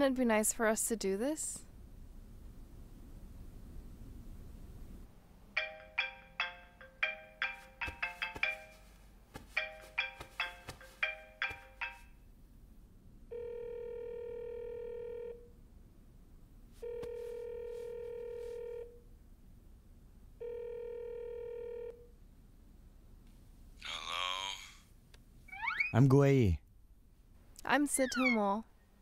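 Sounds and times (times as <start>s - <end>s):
phone ringback tones: 13.3s - 15.5s, 16.8s - 19.0s, 20.4s - 22.0s.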